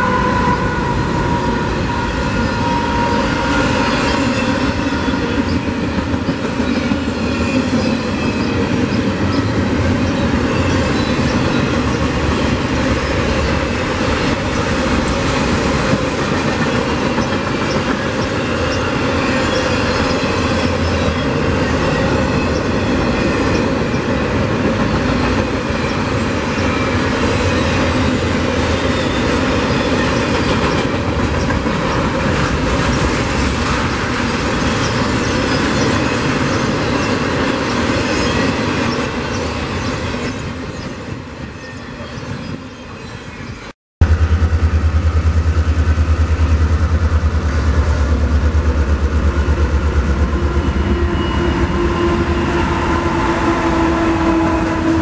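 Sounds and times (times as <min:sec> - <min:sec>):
train wheels on rails: 0:00.0 - 0:55.0
locomotive engine drone: 0:44.0 - 0:55.0.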